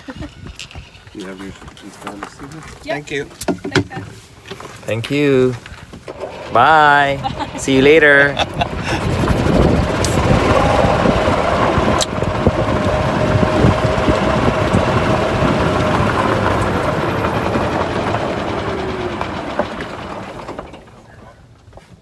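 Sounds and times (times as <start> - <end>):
wind noise: 0.0 - 2.0, 5.6 - 18.8
road rumble: 0.0 - 22.0
electric motor whine: 6.1 - 20.8.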